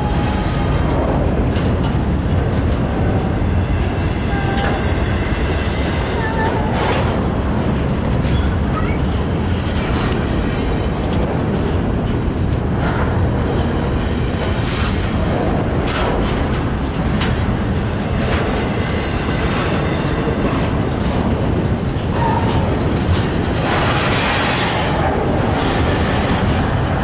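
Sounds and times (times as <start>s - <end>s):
steel wheels rumbling on rail: 0.0s - 27.0s
wheel squeaks and clanks: 6.8s - 11.2s.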